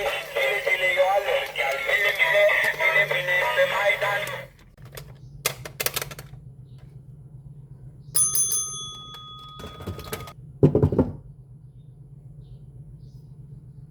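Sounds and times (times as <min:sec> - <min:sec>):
bright bell ding: 0:08.2 - 0:10.3.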